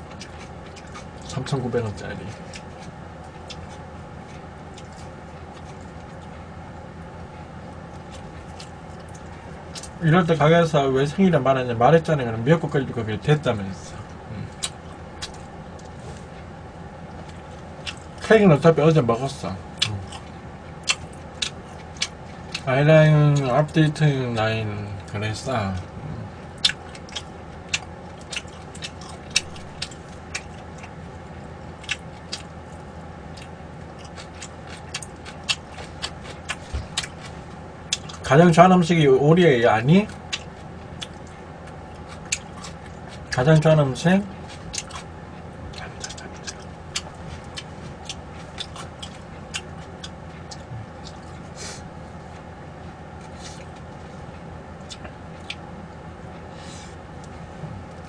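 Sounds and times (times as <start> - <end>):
mouth chewing clicks and smacks: 0.0 - 1.4, 2.2 - 6.9, 7.9 - 10.0, 14.0 - 16.0, 17.1 - 18.3, 19.7 - 22.7, 26.5 - 38.2, 40.0 - 43.7, 44.3 - 51.5, 53.2 - 55.7
breathy hisses: 51.6 - 51.9, 56.5 - 57.0.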